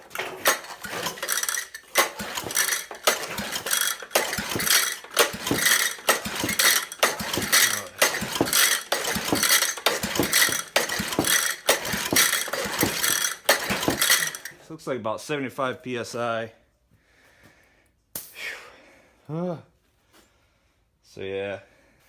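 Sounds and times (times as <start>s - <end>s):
engine pull-start cranking: 0.0s - 14.6s.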